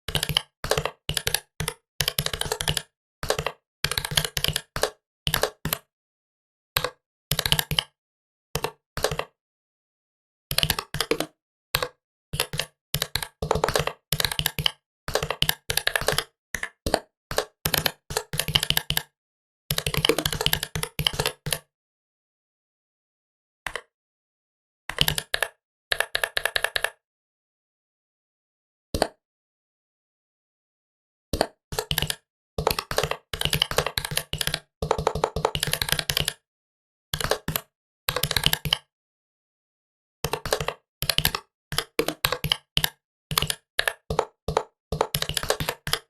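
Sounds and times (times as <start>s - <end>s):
laptop keyboard typing: 0.1s - 5.9s, 6.8s - 8.0s, 8.6s - 9.3s, 10.5s - 19.1s, 19.7s - 21.6s, 24.9s - 27.0s, 31.4s - 36.4s, 37.2s - 38.9s, 40.3s - 46.0s.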